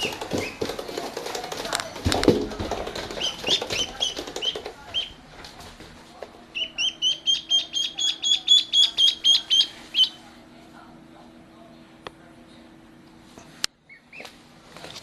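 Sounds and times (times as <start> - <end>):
duckling peeping: 2.9 - 5.2, 6.5 - 10.2, 13.9 - 14.3.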